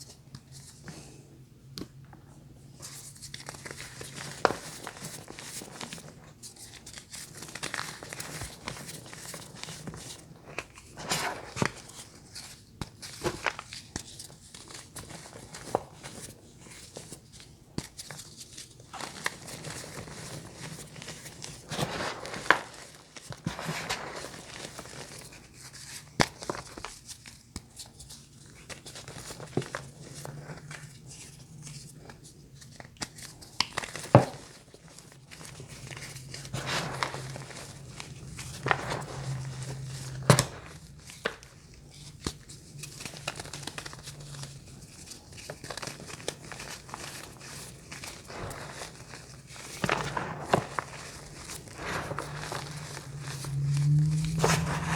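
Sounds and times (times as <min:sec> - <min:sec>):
wrapper crinkling: 0:33.3 - 0:54.9.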